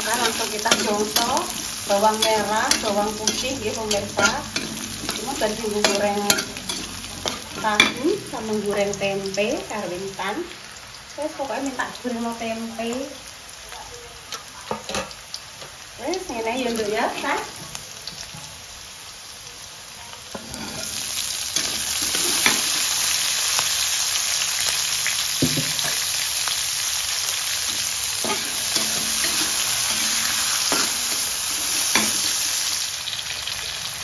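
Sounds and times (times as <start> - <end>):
metal spatula scraping wok: 0.0 - 9.0, 20.3 - 23.2, 27.7 - 32.7
vegetables sizzling in hot oil: 0.0 - 34.0.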